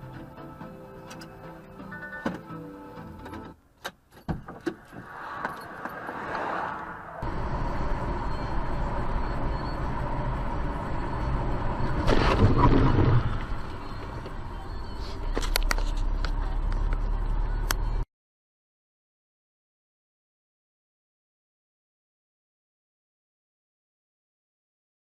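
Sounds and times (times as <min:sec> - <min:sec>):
car engine and tyre rumble: 0:00.0 - 0:18.1.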